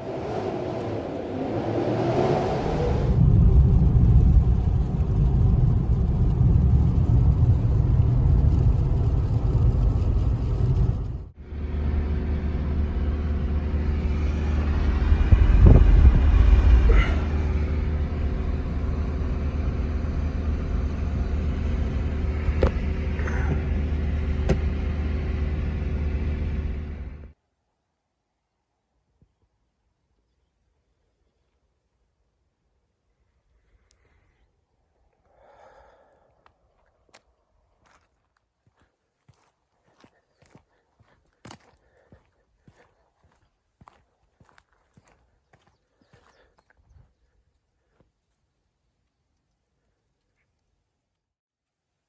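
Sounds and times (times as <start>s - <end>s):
low rumble: 0.0s - 27.4s.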